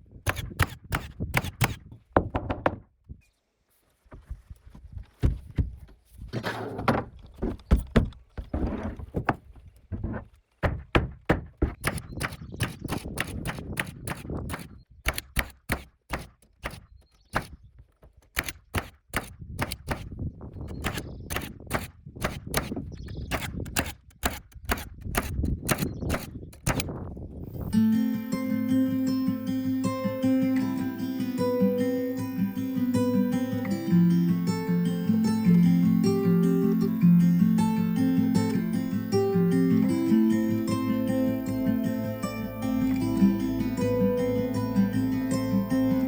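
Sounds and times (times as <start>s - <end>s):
nail gun firing into plywood: 0.2s - 2.8s, 10.6s - 17.6s, 18.3s - 27.0s
knocks and thumps: 1.6s - 2.9s, 4.1s - 14.2s.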